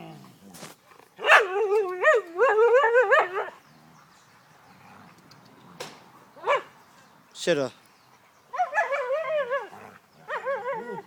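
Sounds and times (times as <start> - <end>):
dog yelping: 1.2 - 3.6, 8.5 - 11.0
dog whining: 8.5 - 11.0.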